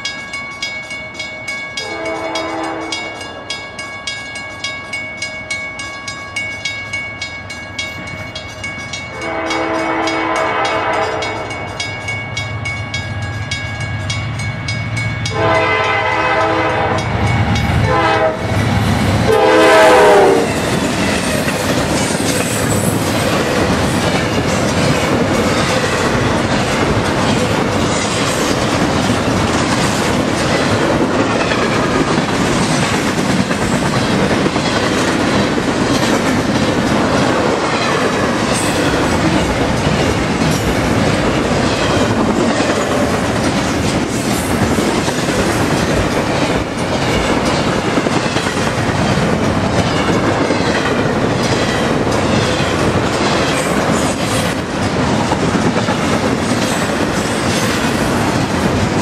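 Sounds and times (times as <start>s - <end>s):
crossing bell ringing rapidly: 0.0s - 19.2s, 20.0s - 58.7s
train wheel noise: 0.0s - 59.0s
locomotive horn blasts: 1.8s - 3.2s, 9.1s - 11.5s, 15.3s - 17.1s, 17.8s - 18.5s, 19.3s - 20.6s.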